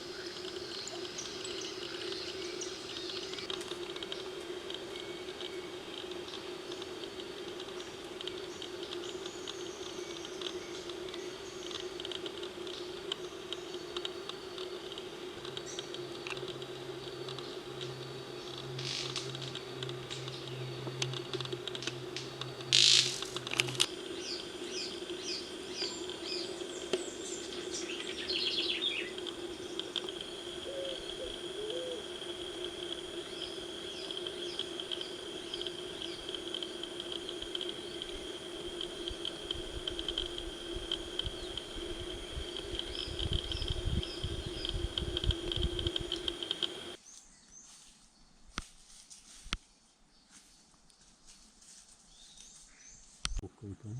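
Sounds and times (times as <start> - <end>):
high-pitched buzz: 0.0 - 47.0
low steady hum: 0.0 - 47.0
low rumbling: 15.0 - 47.0
bird chirps: 24.2 - 29.2.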